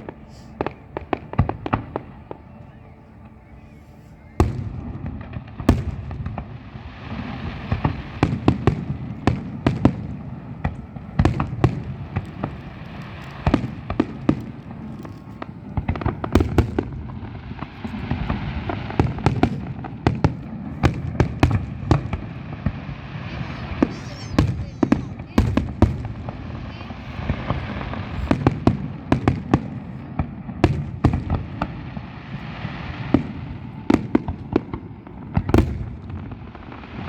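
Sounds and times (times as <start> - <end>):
fireworks exploding: 0.0 - 37.0.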